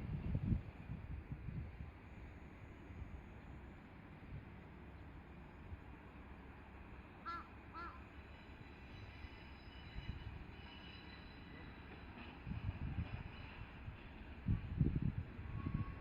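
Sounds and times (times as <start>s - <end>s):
diesel train approaching: 0.0s - 16.0s
crow cawing: 7.2s - 8.0s.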